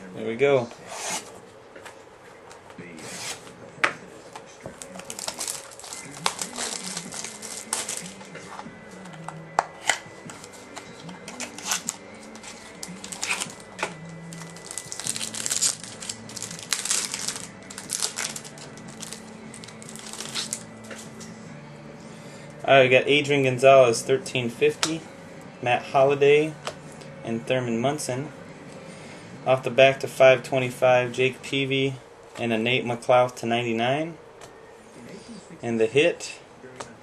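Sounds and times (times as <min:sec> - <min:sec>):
cards being handled: 0:01.8 - 0:21.3
packaging crinkling: 0:04.8 - 0:08.2, 0:11.3 - 0:20.7.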